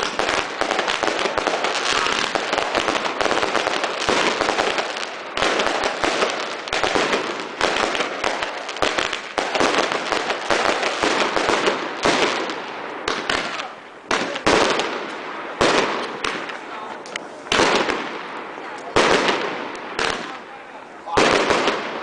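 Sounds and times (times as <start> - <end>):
fireworks crackling and banging: 0.0 - 22.0.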